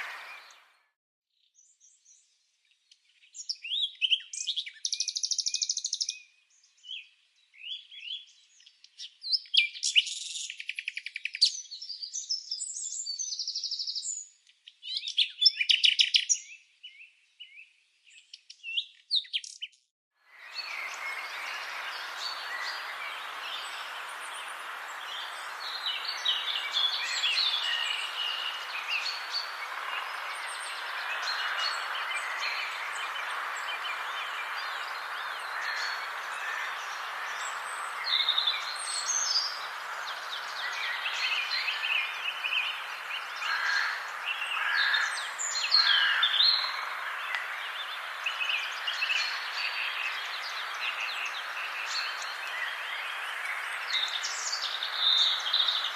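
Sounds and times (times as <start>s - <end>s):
birds singing and chirping: 3.2s - 55.9s
steady background hiss: 20.5s - 45.8s.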